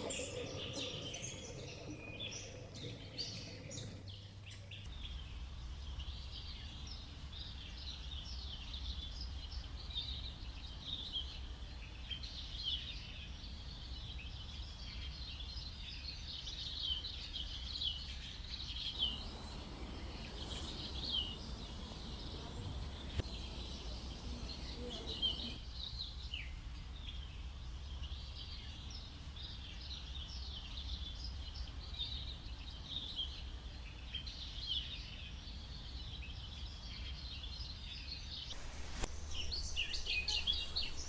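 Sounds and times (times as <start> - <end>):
birds chirping chorus: 0.0 - 4.9, 18.9 - 25.6, 38.5 - 41.0
steady low rumble: 19.0 - 25.6.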